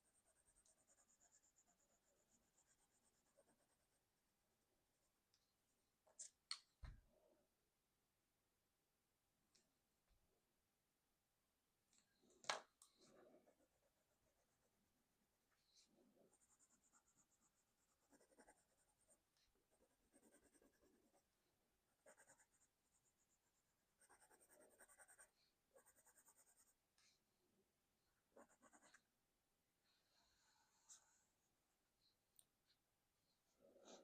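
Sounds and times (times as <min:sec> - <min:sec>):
colored pencil scratching on paper: 0:00.0 - 0:04.2, 0:13.0 - 0:15.0, 0:15.7 - 0:26.8, 0:28.3 - 0:29.1.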